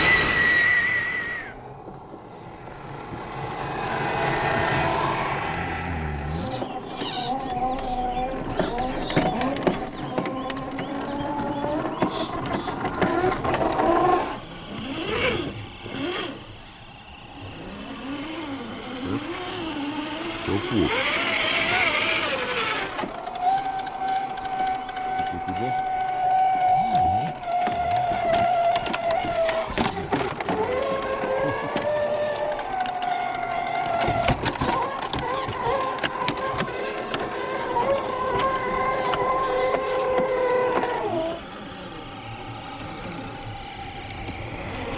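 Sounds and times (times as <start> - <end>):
rc truck electric motor whine: 0.0 - 44.9
clicks and knocks from tires: 6.3 - 16.3, 21.4 - 41.4.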